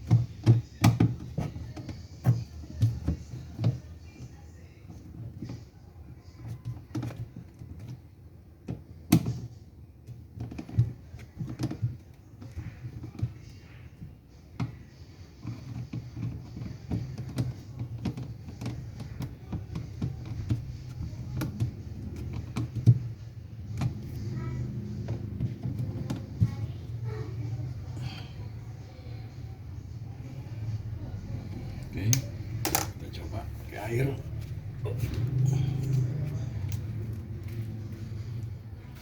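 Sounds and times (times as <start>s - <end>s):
tools and parts clicking and knocking: 32.1s - 33.0s.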